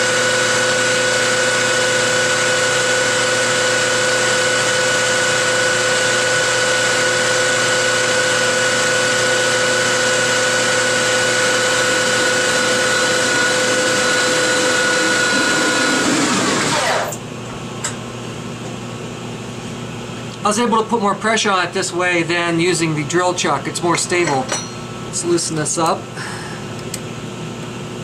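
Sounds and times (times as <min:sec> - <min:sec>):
lathe whining: 0:00.0 - 0:17.2.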